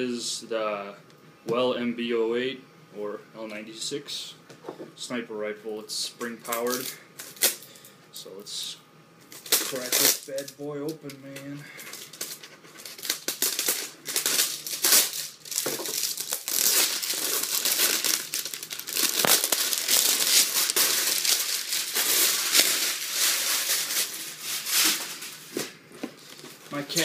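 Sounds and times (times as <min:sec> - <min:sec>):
plastic packaging crinkling: 0:09.3 - 0:10.6, 0:11.3 - 0:27.0.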